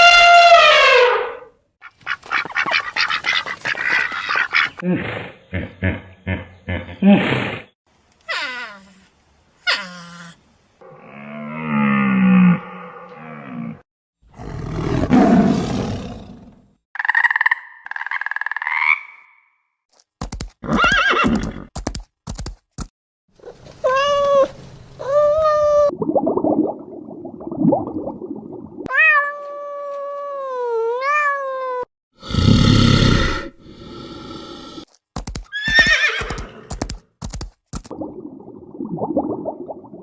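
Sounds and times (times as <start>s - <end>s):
animal calls: 1.8s - 7.2s.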